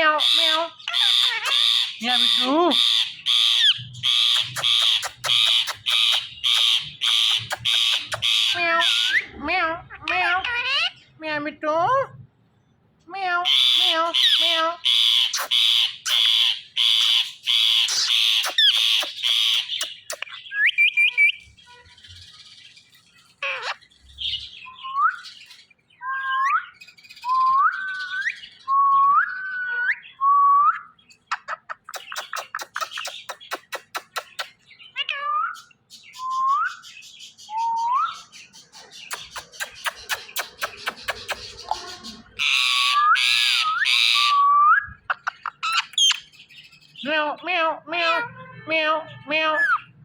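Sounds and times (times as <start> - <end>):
parakeet screeching: 0.0 - 11.0, 13.4 - 22.1, 23.2 - 23.9, 31.3 - 35.7, 39.0 - 46.3.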